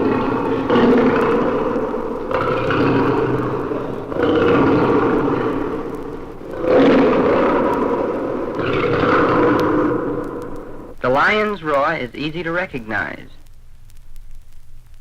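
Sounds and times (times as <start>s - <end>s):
animal giving long pitched calls: 0.0s - 11.0s.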